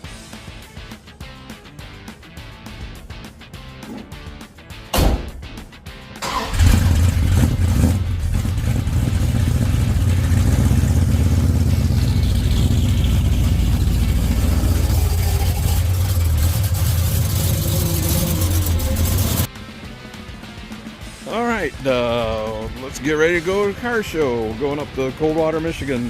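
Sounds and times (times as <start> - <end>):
car engine starting and idling: 2.4 - 23.4
engine revving blips: 6.2 - 20.7.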